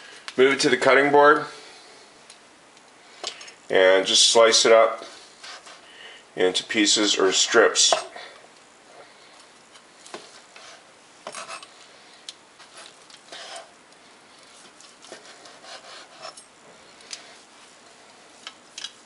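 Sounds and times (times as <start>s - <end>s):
knife slicing through meat: 15.1s - 16.4s.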